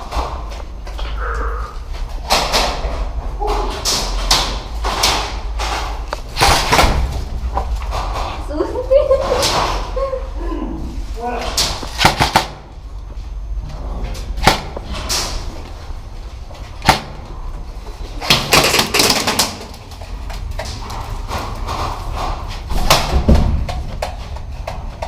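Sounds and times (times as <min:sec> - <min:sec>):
airsoft gun shots: 0:11.9 - 0:12.7, 0:14.4 - 0:14.8, 0:16.8 - 0:17.2.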